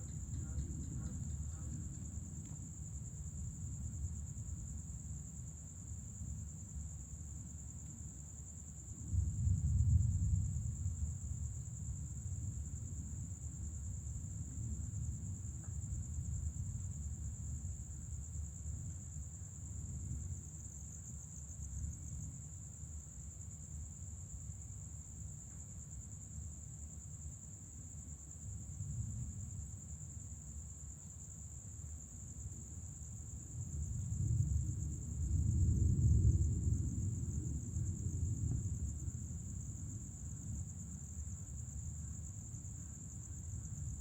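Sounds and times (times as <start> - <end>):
distant thunder rumbling: 0.0 - 2.8, 33.8 - 41.0
insects trilling: 0.0 - 4.6.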